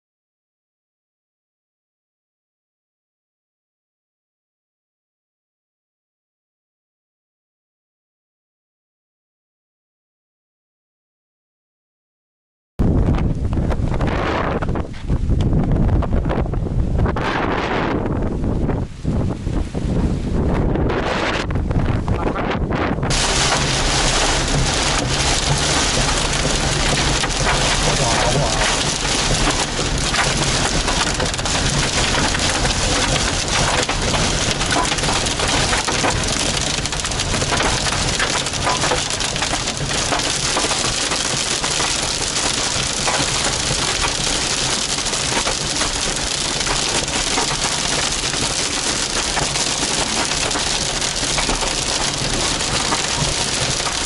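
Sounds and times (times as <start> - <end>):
heavy rain roaring: 13.4 - 54.0
hail clattering: 23.1 - 54.0.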